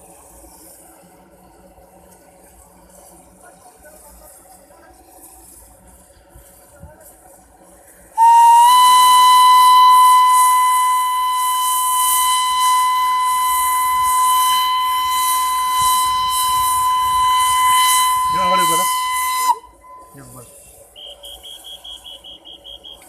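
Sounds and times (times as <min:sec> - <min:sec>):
pulsing hiss: 0:00.0 - 0:23.0
train whistle blast: 0:08.2 - 0:23.0.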